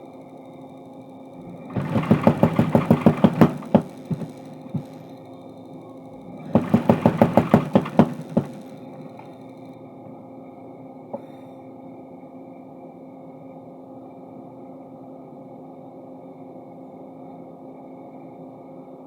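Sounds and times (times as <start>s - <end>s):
machine hum: 0.0s - 10.3s
power hammer pounding steel: 1.5s - 5.1s, 6.4s - 9.4s.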